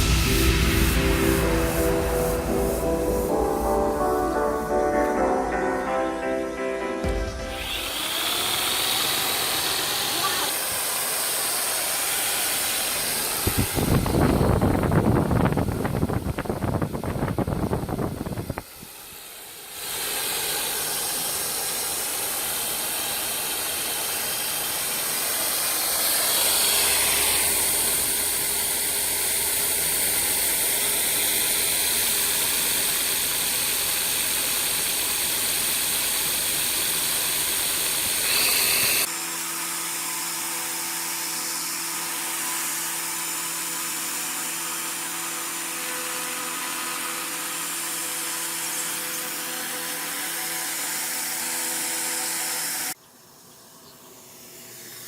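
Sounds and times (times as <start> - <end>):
rushing air hiss: 0.0 - 5.7
electric drill motor running: 7.2 - 53.0.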